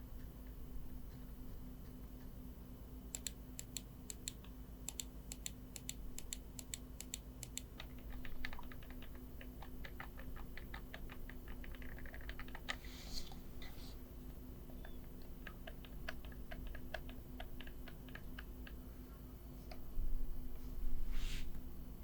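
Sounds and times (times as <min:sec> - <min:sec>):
computer mouse clicking: 0:03.1 - 0:12.8, 0:14.7 - 0:18.8.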